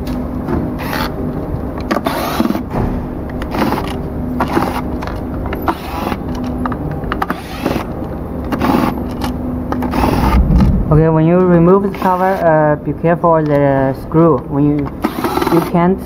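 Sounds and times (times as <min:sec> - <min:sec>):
screwdriver scraping and creaking: 0:03.4 - 0:10.4.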